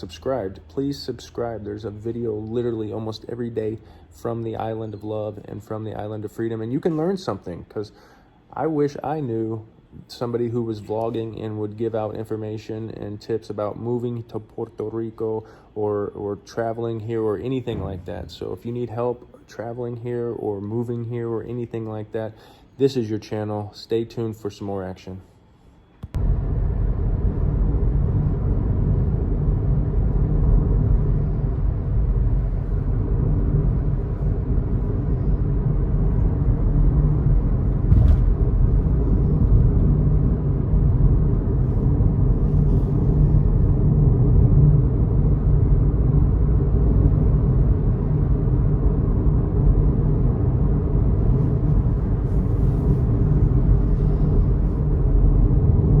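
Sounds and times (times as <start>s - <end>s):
car driving rumble: 26.2s - 56.0s.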